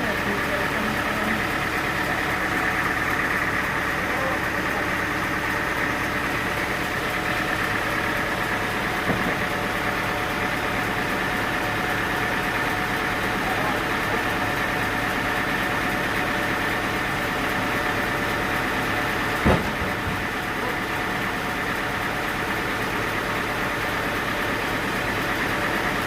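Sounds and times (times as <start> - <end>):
sawmill machinery whining: 0.0 - 26.0
short knock: 19.4 - 19.9.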